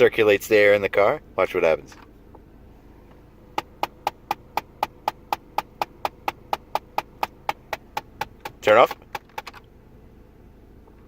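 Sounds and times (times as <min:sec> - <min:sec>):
sharp even tapping in car vent: 0:03.5 - 0:09.7.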